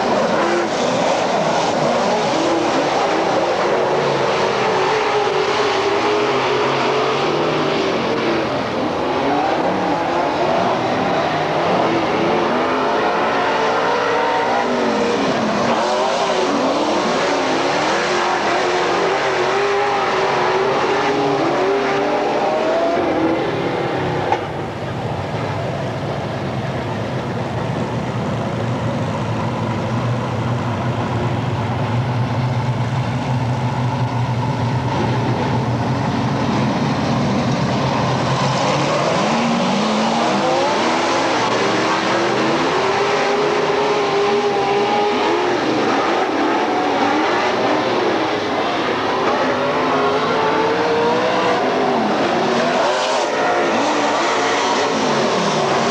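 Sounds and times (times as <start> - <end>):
race car engines passing: 0.0 - 55.9.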